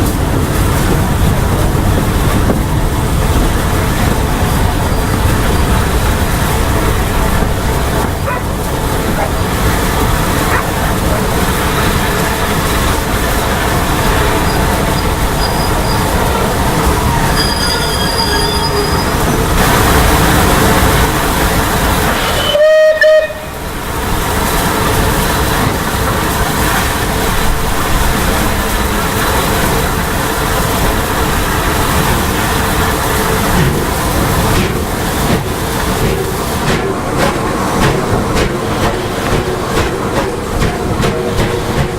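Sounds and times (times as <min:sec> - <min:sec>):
steam train rumbling: 0:00.0 - 0:41.9
steam whistle blast: 0:22.2 - 0:23.6.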